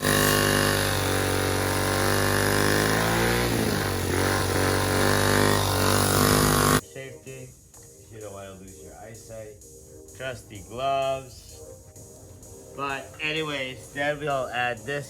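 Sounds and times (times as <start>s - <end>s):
engine running: 0.0s - 6.8s.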